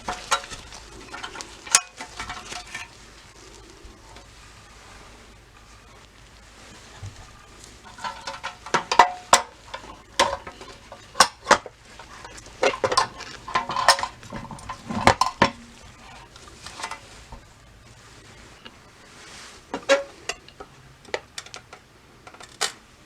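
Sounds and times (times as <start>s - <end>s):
metal parts clinking: 7.8s - 17.0s.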